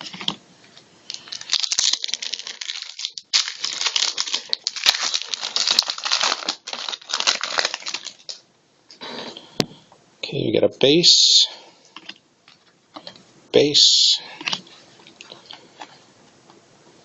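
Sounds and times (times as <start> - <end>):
card pack wrapper crinkling: 1.1 - 8.4.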